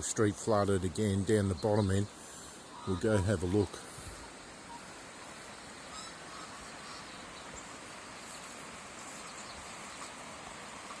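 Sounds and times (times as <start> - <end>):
faint outdoor background noise: 0.0 - 11.0
faint bird chirps: 1.5 - 3.2, 4.1 - 10.2.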